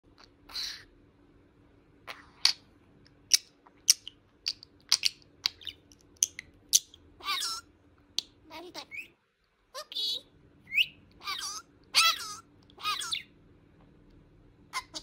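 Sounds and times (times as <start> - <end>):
budgerigar chirping: 0.5 - 0.9, 3.3 - 9.2, 9.8 - 13.3, 14.8 - 15.0
budgerigar warbling call: 10.7 - 13.3.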